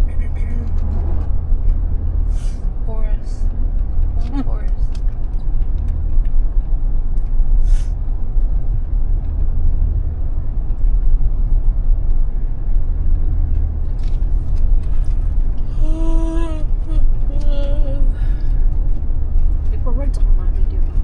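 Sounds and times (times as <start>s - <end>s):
vehicle rumbling: 0.0s - 21.0s
brief hiss: 2.3s - 2.6s, 7.6s - 8.0s.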